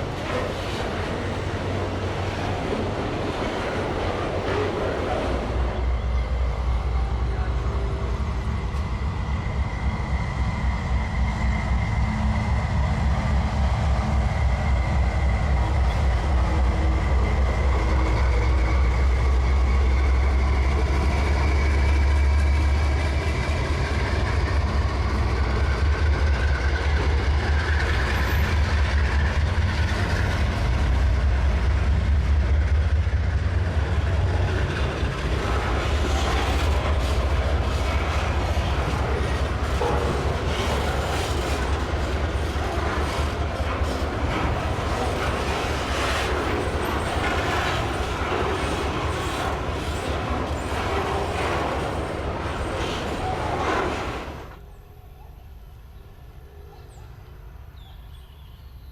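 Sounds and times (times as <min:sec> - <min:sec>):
train rumble: 0:00.0 - 0:58.9
wheels clattering over rails: 0:33.0 - 0:54.6.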